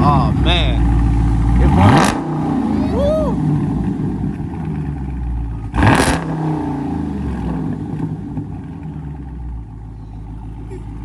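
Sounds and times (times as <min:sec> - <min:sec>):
loud car engine rev: 0:00.0 - 0:09.6.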